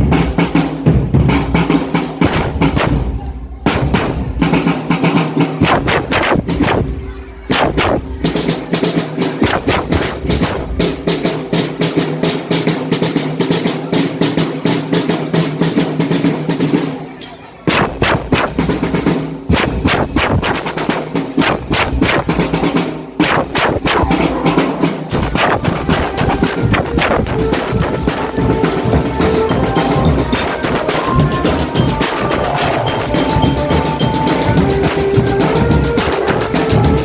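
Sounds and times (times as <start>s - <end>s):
bass drums: 0.0s - 4.6s, 5.6s - 8.4s, 9.4s - 11.2s, 17.7s - 20.7s, 21.4s - 22.6s, 23.2s - 37.0s
snare drum rolls: 0.0s - 17.0s, 17.7s - 37.0s
held low melodic notes: 24.1s - 37.0s.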